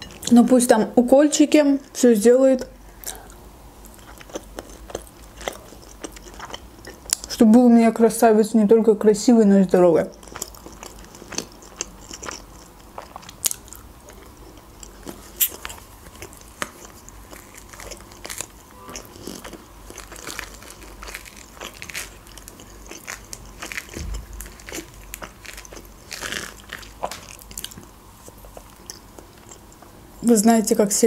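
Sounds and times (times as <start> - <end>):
crunchy bites and chewing: 3.9 - 7.3, 10.1 - 29.6.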